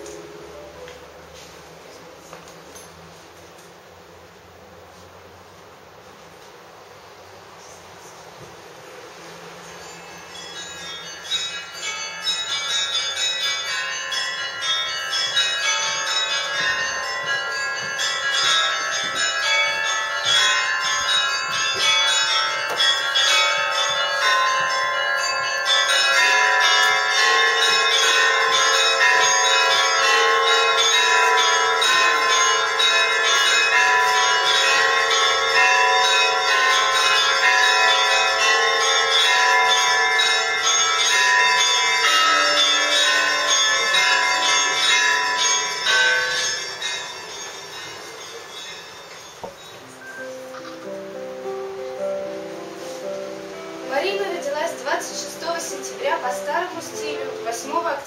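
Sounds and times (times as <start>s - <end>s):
church bells pealing: 0.0s - 3.4s, 8.7s - 58.0s.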